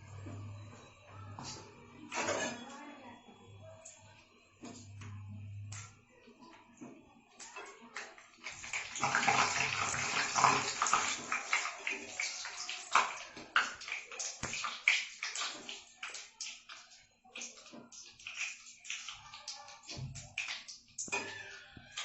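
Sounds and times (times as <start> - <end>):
hot oil sizzling in a pan: 8.4 - 16.8.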